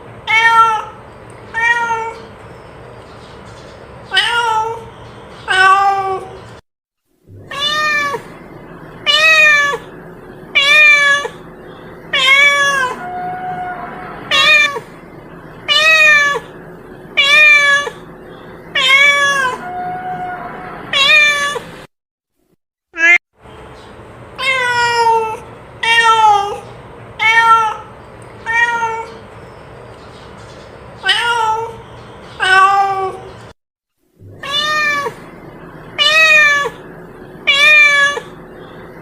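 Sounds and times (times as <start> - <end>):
cat meowing: 0.3 - 2.3, 7.4 - 8.3, 9.0 - 9.9, 10.6 - 11.4, 12.1 - 14.9, 15.7 - 16.6, 17.2 - 18.0, 18.8 - 21.6, 23.0 - 23.2, 24.4 - 26.6, 27.2 - 29.2, 31.0 - 31.8, 32.4 - 33.3, 34.3 - 35.3, 36.0 - 36.8, 37.4 - 38.4.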